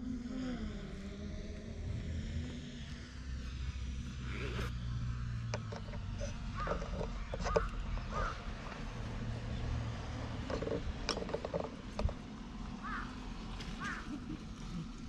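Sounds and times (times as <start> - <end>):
low outdoor rumble: 0.0 - 15.0
small clicks and scrapes: 5.4 - 9.0, 10.2 - 12.3.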